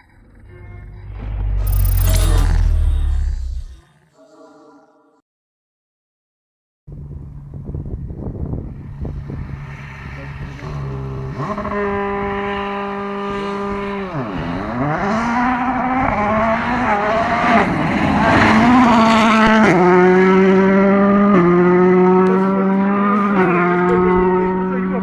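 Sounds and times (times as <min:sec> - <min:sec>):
rally car engine at high revs: 0:08.4 - 0:25.0.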